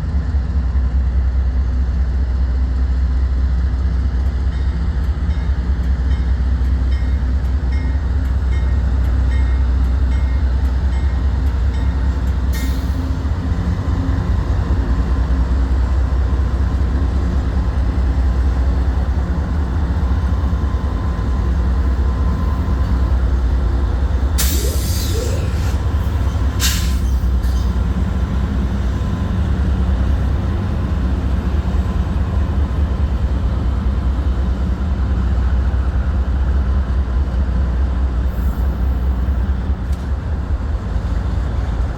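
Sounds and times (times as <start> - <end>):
diesel locomotive rumbling: 0.0 - 41.9
air hissing: 24.1 - 27.8.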